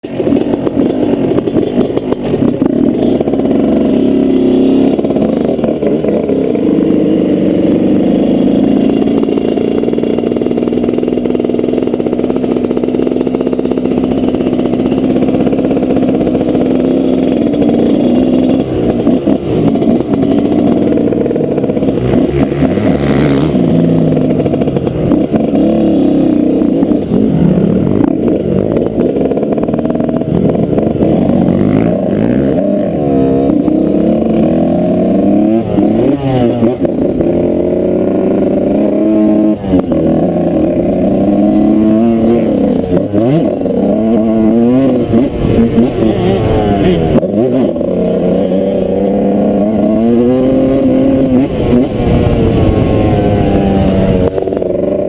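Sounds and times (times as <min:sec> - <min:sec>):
motocross engine revving: 0:00.0 - 0:55.0
rush of noise: 0:16.2 - 0:55.0.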